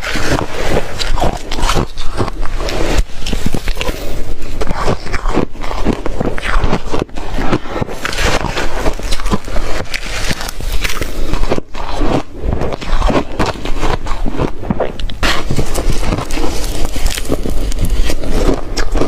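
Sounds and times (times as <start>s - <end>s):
ice crunching while chewed: 0.0s - 19.0s.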